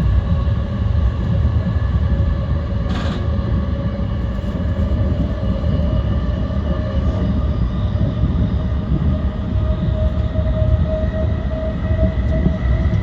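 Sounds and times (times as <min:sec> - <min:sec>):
train motor whine: 0:00.0 - 0:07.4.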